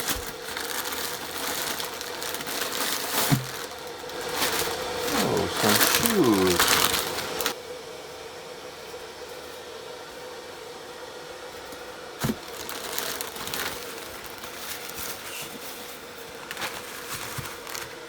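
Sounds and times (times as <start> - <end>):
packaging rustling and crinkling: 0.0 - 4.8, 5.6 - 7.5, 12.2 - 15.3, 16.4 - 18.0.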